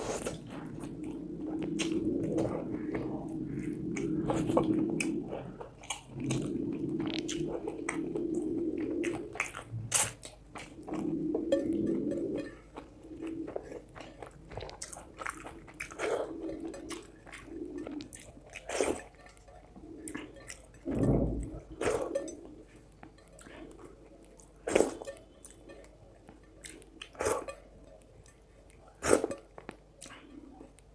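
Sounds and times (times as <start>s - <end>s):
crunches and mouth smacks: 0.0s - 11.8s, 12.8s - 22.3s, 29.0s - 30.9s
person chewing food: 0.0s - 30.9s.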